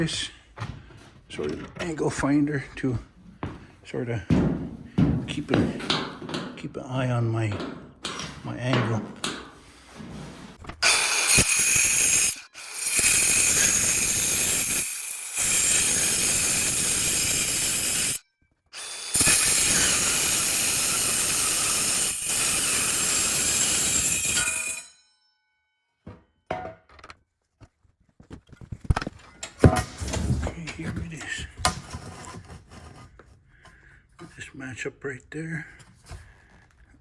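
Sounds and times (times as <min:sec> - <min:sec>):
metalworking tool hissing: 0:10.8 - 0:18.2, 0:18.8 - 0:24.6.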